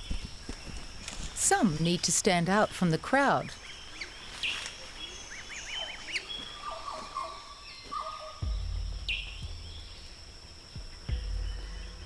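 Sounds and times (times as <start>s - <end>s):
birds calling: 0.0s - 12.0s
low rumble: 8.4s - 12.0s.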